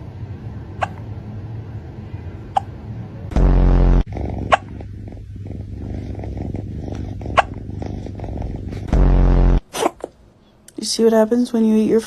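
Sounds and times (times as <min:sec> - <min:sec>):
steady low rumble: 0:00.0 - 0:09.6
loud low blast: 0:03.3 - 0:04.5, 0:08.8 - 0:09.6
cat hiccuping: 0:07.1 - 0:08.0.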